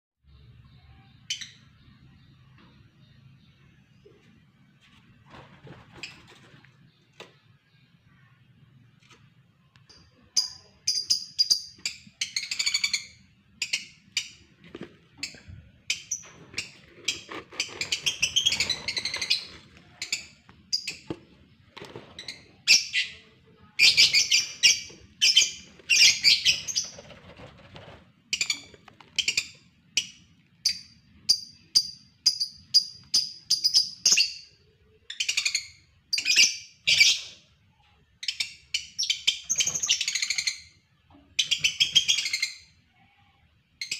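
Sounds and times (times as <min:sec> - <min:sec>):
lovebirds chirping shrilly: 0:22.3 - 0:27.0.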